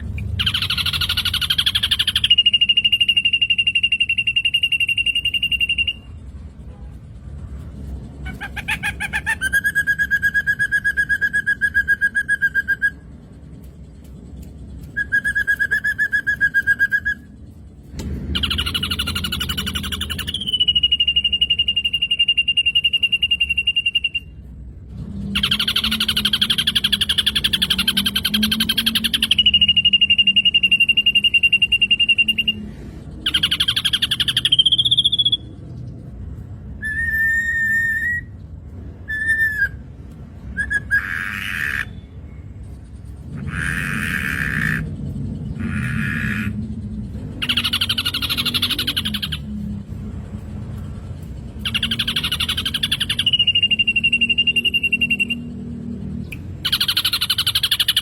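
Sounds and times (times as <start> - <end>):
bird whistling and trilling: 0.0 - 6.2, 8.3 - 13.2, 14.8 - 17.5, 18.1 - 35.6, 36.6 - 42.4, 45.6 - 49.7, 51.5 - 58.0.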